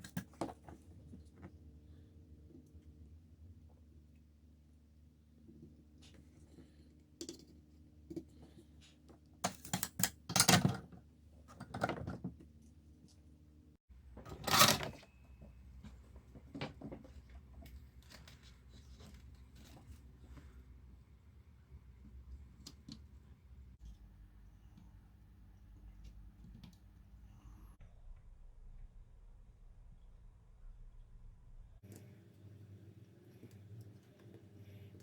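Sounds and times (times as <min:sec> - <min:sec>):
rustling and scraping: 0:14.2 - 0:20.7.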